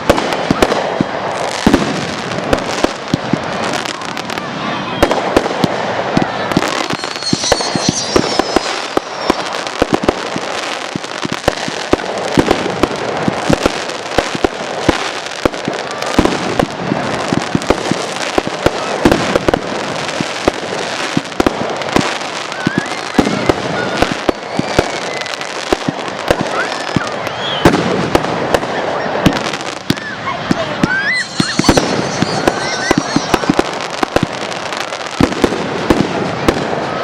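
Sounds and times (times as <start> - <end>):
firework crackling: 0.0 - 37.0
faint firework whistles: 3.6 - 16.7, 17.4 - 37.0
firework shell bursts: 6.6 - 10.4, 30.8 - 36.1.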